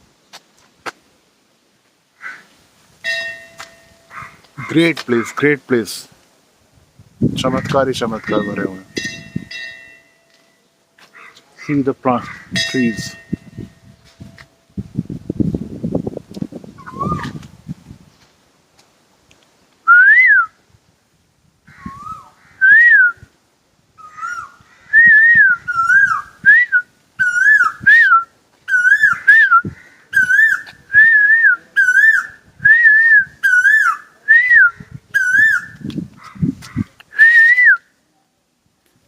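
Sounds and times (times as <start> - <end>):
koel calling: 7.4 - 9.1, 16.8 - 17.4, 24.0 - 26.3, 27.2 - 37.5.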